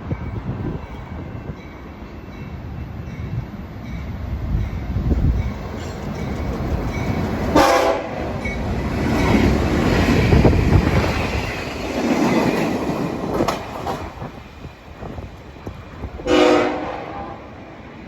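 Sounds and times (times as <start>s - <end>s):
train rumbling along rails: 0.0s - 18.0s
train wheel clatter: 4.6s - 16.2s
train horn blast: 7.6s - 8.3s, 16.2s - 17.6s.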